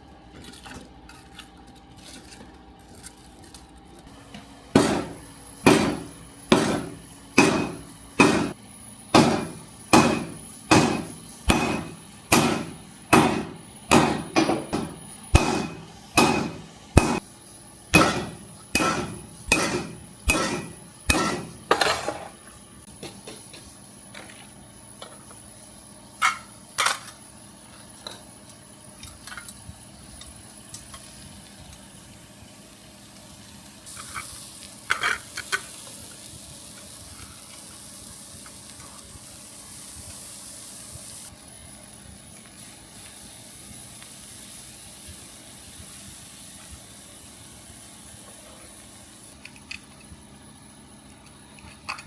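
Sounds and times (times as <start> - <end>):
hammer striking steel on anvil: 4.7 - 17.2, 17.9 - 22.2.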